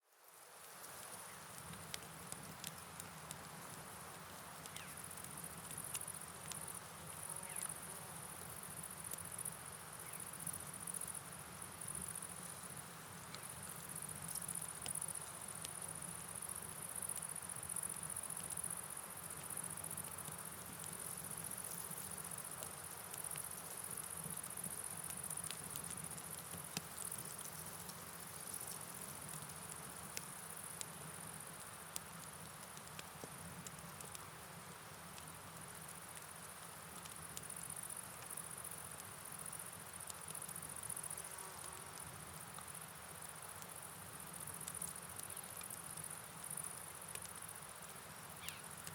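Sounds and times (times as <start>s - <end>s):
night insects chirring: 0.2s - 34.3s, 35.6s - 48.9s
rain pattering: 0.4s - 7.2s.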